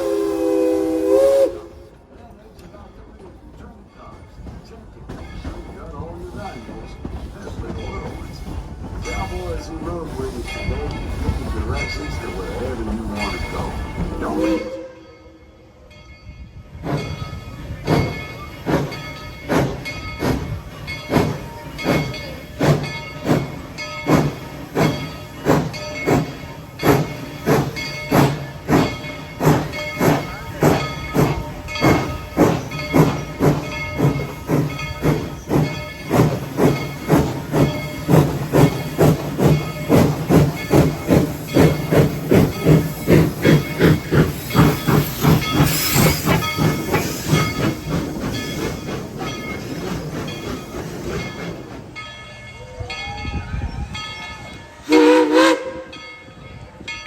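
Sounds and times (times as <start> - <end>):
steam locomotive chuffing: 0.0 - 15.4, 16.6 - 53.0, 53.9 - 56.0
steam hissing: 16.8 - 52.0.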